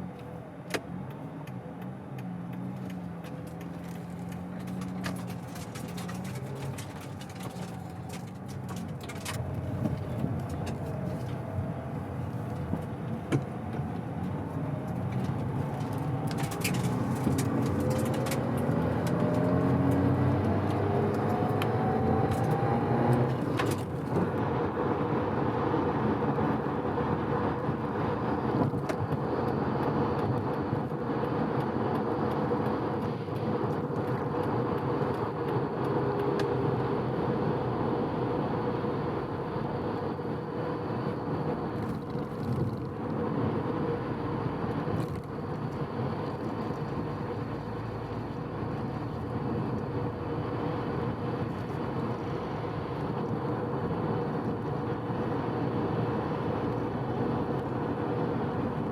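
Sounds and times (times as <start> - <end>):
road noise: 0.0 - 58.9
rotary engine accelerating: 1.0 - 58.9.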